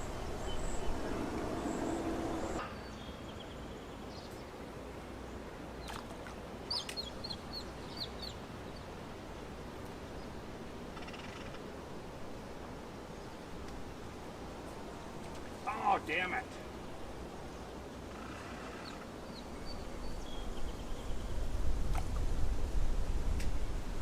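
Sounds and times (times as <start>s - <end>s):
bird chirping: 0.0s - 4.5s
outdoor background hiss: 0.0s - 24.0s.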